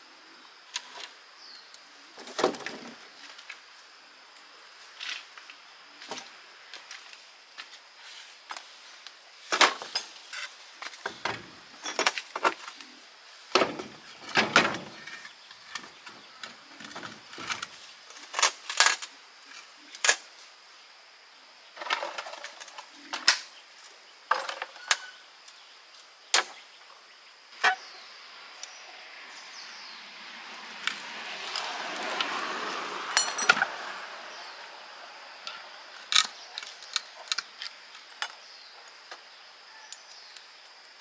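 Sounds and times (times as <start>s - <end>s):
metal tools clinking: 33.1s - 33.7s.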